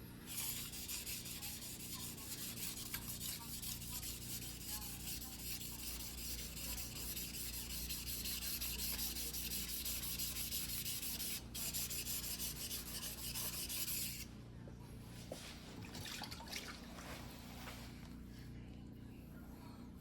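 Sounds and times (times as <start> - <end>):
knife rubbing on whetstone: 0.3 - 14.3.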